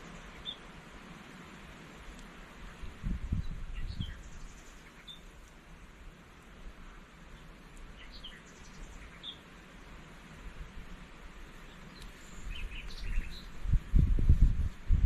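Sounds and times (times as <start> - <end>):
bird chirps: 0.0 - 0.6, 3.4 - 5.3, 8.0 - 9.4, 11.7 - 13.6
low background noise: 0.0 - 15.0.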